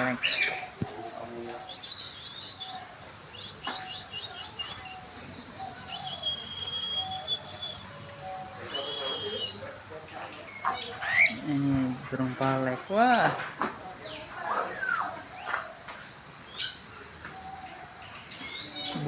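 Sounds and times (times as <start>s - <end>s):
budgerigars chirping and whistling: 0.0s - 11.6s, 16.5s - 19.0s.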